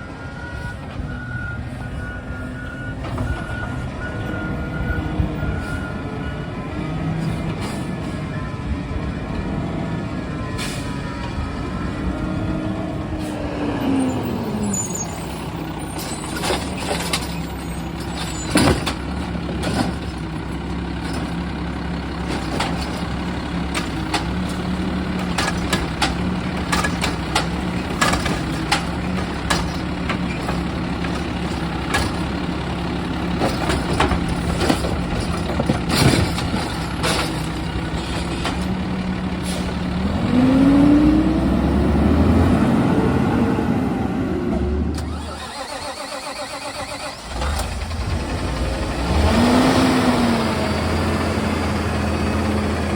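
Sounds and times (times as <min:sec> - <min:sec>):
truck engine running: 0:00.0 - 0:52.9
metal clanks and knocks: 0:15.9 - 0:39.8.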